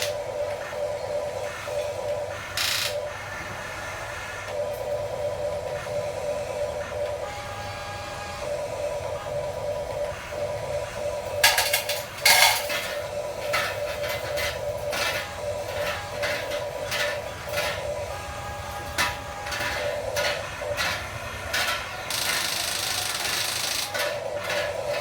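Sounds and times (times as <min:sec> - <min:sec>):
small electric motor whining: 0:05.6 - 0:25.0
hard parts clicking and clattering: 0:11.2 - 0:25.0.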